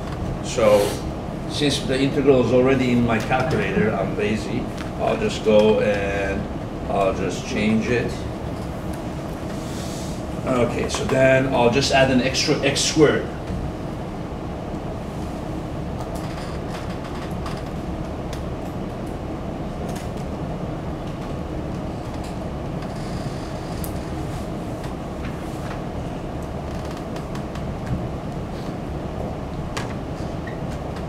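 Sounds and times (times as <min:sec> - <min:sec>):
low room rumble with hum: 0:00.0 - 0:31.0.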